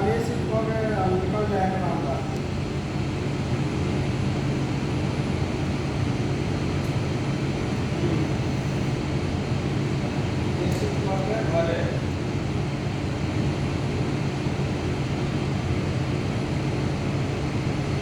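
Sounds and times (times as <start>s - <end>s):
machinery drone: 5.2s - 17.6s.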